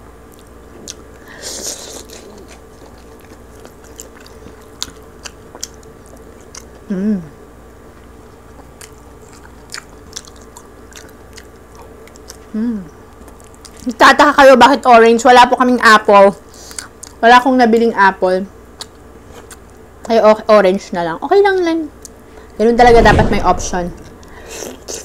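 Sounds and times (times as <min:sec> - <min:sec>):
crispy meat torn and chewed: 0:00.2 - 0:06.9, 0:07.8 - 0:14.0, 0:16.5 - 0:17.2, 0:18.6 - 0:20.2
short hummed voice: 0:06.8 - 0:07.4.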